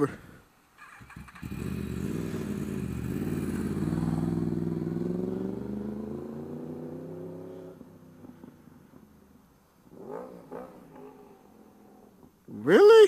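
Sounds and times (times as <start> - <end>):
motorcycle engine accelerating: 0.8 - 9.0, 9.9 - 12.0.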